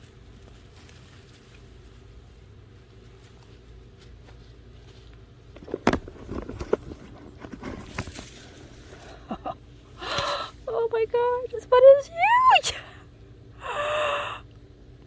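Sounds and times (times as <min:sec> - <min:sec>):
spade scraping soil: 0:05.5 - 0:09.2.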